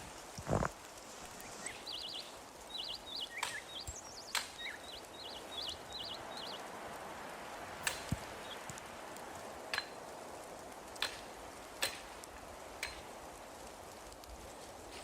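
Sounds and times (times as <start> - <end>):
outdoor hiss: 0.0 - 15.0
songbird warbling chirps: 1.4 - 6.8.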